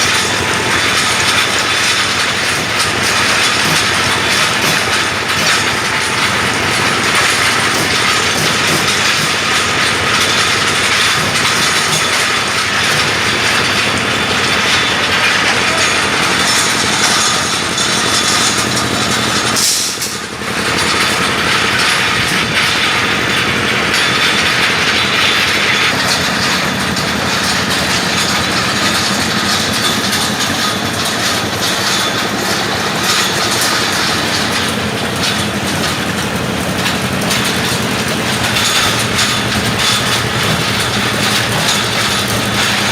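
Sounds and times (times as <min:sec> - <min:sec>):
bending machine running: 0:00.0 - 0:42.9.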